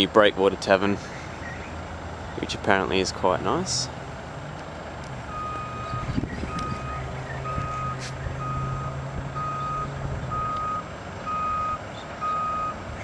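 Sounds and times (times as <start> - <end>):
engine humming: 0.0 - 13.0
reversing alarm beeping: 5.3 - 12.8.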